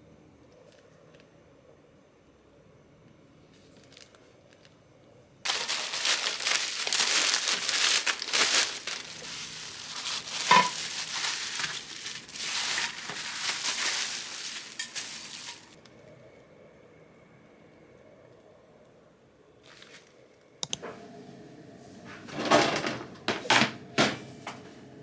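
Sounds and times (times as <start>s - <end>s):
loud crinkling and crackling: 5.5s - 15.8s.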